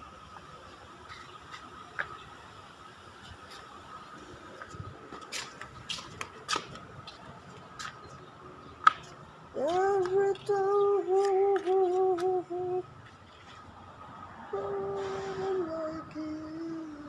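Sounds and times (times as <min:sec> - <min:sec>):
person humming: 0:09.6 - 0:12.9, 0:14.5 - 0:17.0.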